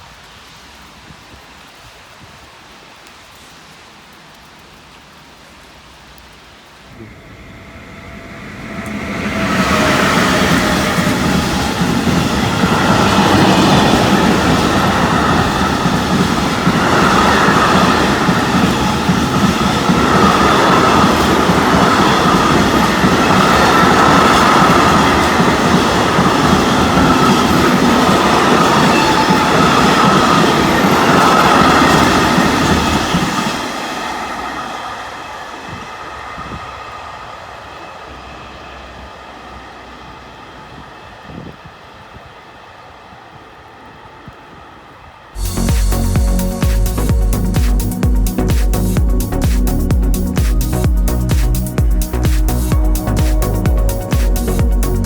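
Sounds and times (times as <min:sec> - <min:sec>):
train passing on rails: 0:00.0 - 0:55.0
high wavering whine: 0:06.9 - 0:32.7.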